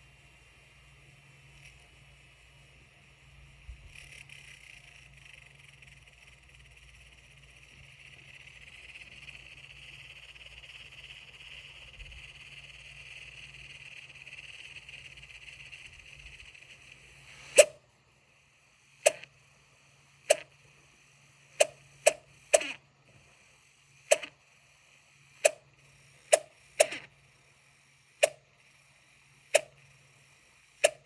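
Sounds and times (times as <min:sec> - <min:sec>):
laptop fan whirring and whining: 0:00.0 - 0:31.0
sharp clicks: 0:19.0 - 0:19.3, 0:20.3 - 0:20.5, 0:21.6 - 0:22.8, 0:24.1 - 0:24.4, 0:25.4 - 0:27.1, 0:30.8 - 0:31.0.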